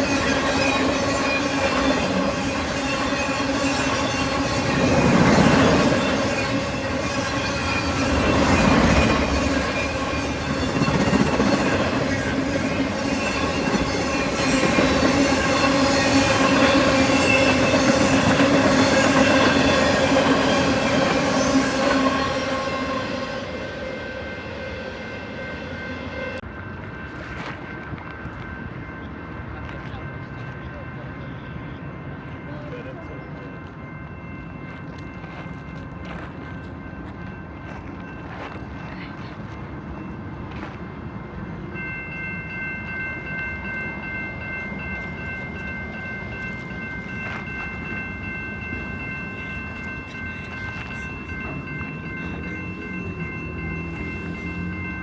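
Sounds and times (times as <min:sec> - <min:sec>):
steady ringing tones: 0:00.0 - 0:26.4, 0:41.0 - 0:55.0
train cars rumbling past: 0:00.0 - 0:55.0.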